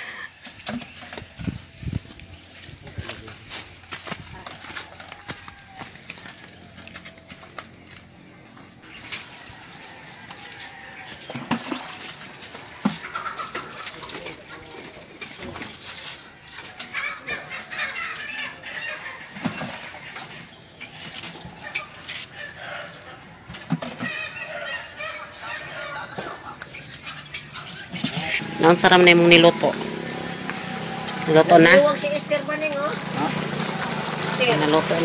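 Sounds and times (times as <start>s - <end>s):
footsteps: 1.0s - 18.2s
birds calling: 5.6s - 35.0s.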